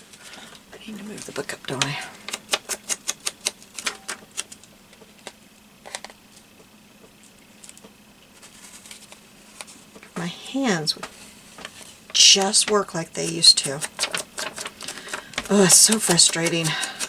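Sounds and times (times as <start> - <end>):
ink pad tapping on paper: 10.4 - 17.0.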